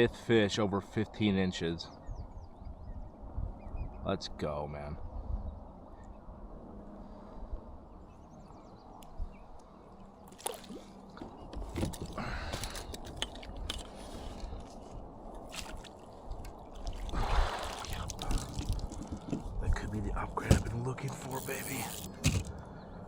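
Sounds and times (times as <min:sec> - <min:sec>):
water sloshing against kayak: 0:10.2 - 0:19.6
splashing: 0:10.3 - 0:11.0, 0:15.4 - 0:19.3
clicks and knocks of handling: 0:11.2 - 0:14.8, 0:18.2 - 0:19.5.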